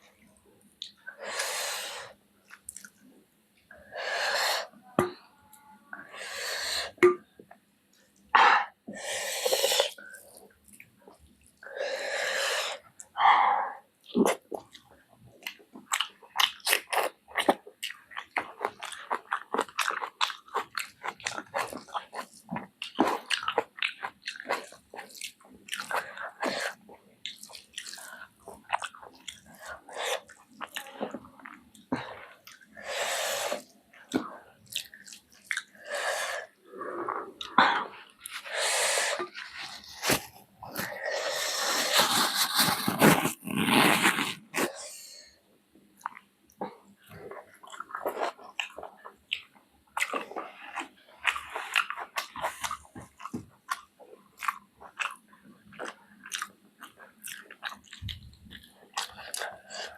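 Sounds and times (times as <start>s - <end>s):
person chewing and biting: 15.9s - 31.6s.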